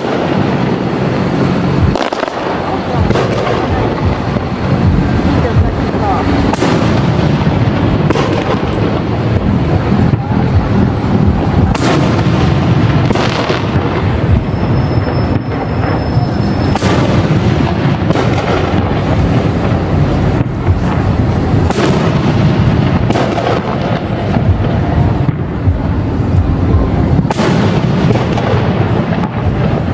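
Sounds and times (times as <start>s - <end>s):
fireworks booming: 0.0s - 29.9s
fireworks cracking: 0.0s - 29.9s.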